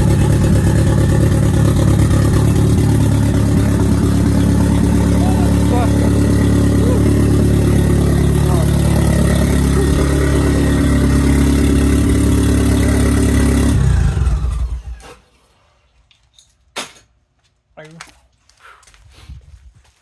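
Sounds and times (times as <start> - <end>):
car engine running loudly: 0.0 - 14.9
engine winding down: 0.0 - 15.1.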